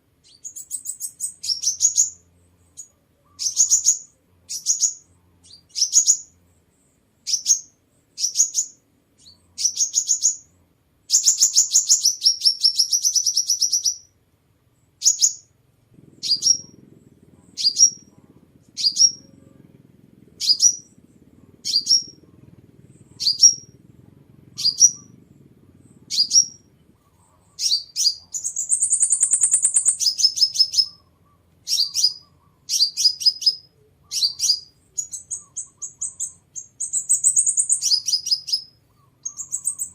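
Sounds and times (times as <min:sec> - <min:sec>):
bird chirping: 0:00.0 - 0:39.9
bird trilling: 0:02.8 - 0:06.4, 0:11.1 - 0:14.1, 0:15.0 - 0:39.9.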